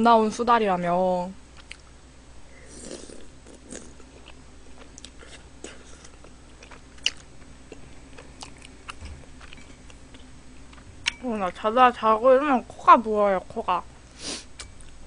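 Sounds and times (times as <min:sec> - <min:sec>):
person chewing close up: 0:01.6 - 0:01.9, 0:02.6 - 0:11.2.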